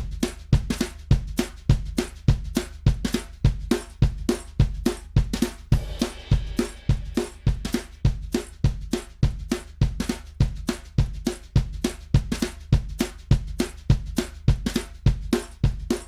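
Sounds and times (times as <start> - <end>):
drum kit groove: 0.0 - 16.0
cymbal wash: 5.7 - 7.8.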